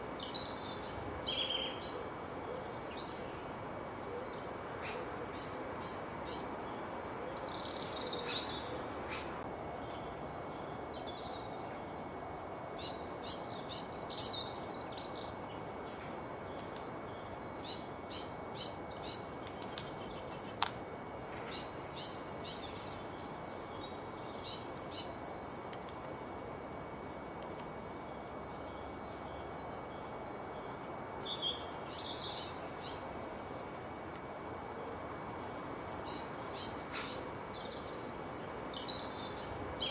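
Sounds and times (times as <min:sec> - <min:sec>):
background hiss: 0:00.0 - 0:39.9
songbird singing: 0:00.0 - 0:39.9.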